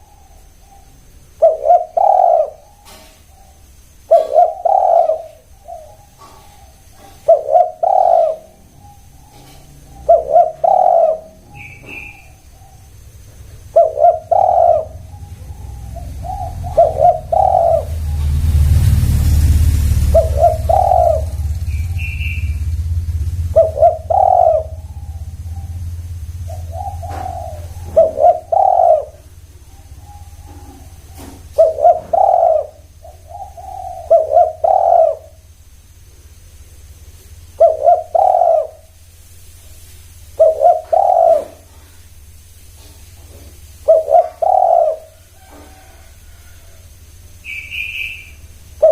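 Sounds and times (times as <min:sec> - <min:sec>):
doves cooing: 0:00.0 - 0:39.1, 0:39.8 - 0:48.9
low rumble: 0:11.2 - 0:31.6.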